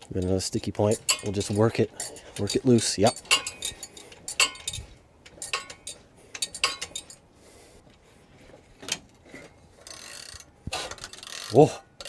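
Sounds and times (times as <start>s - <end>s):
wrench clinking on metal: 0.0s - 7.3s, 9.9s - 11.8s.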